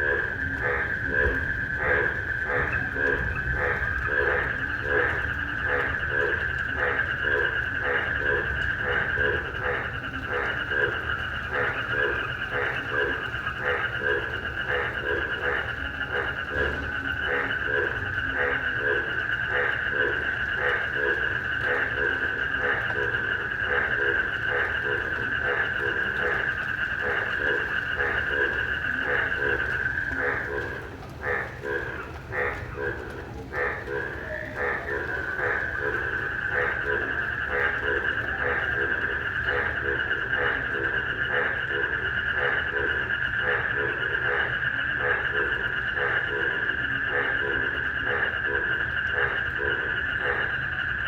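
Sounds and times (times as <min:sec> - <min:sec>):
crickets chirping: 0:00.0 - 0:51.0
frogs croaking: 0:00.0 - 0:51.0.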